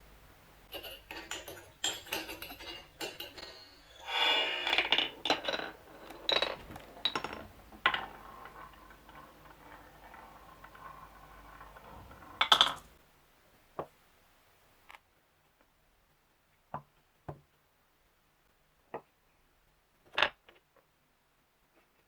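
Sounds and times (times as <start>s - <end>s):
marbles rolling and clacking: 0.8s - 13.0s.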